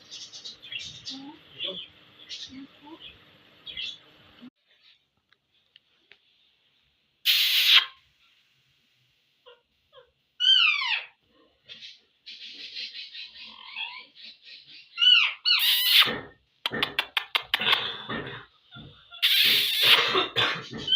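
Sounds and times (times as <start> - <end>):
parrot calls sliding downward: 7.3 - 7.9
parrot chattering: 12.4 - 16.1, 19.1 - 20.1
parrot sharp clicks: 16.7 - 17.8.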